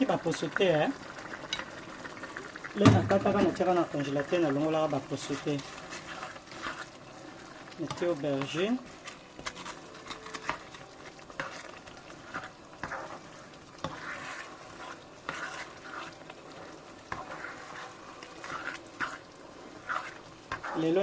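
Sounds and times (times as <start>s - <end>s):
spoon scraping cooking pot: 5.2s - 7.0s, 7.8s - 21.0s.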